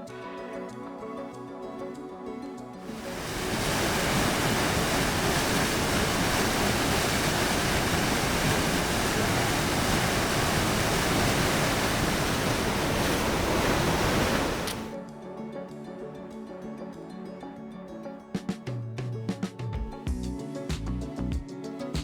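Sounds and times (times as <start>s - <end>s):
whitewater stream rushing: 2.8s - 15.0s.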